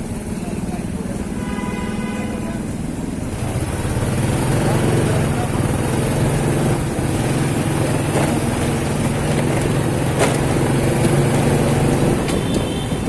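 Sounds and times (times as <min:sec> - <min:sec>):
hum of traffic: 0:00.0 - 0:13.0
motorcycle engine running: 0:00.0 - 0:13.0.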